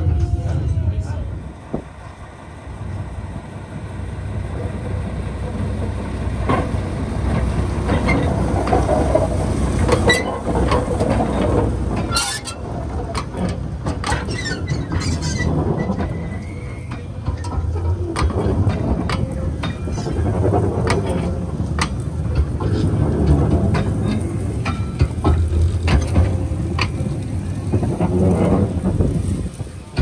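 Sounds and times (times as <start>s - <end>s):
train rumbling on track: 0.0s - 30.0s
sharp clicks and knocks: 6.4s - 30.0s.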